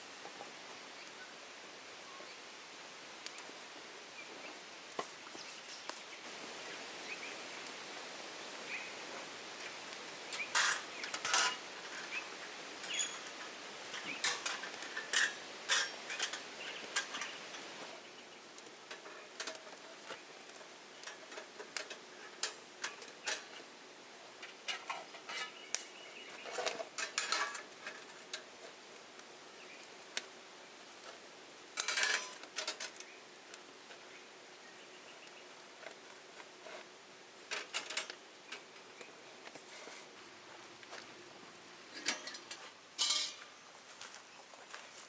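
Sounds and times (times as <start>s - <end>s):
cutlery and dishes clinking: 10.4s - 11.6s, 26.6s - 28.4s, 31.8s - 32.9s, 42.0s - 43.5s.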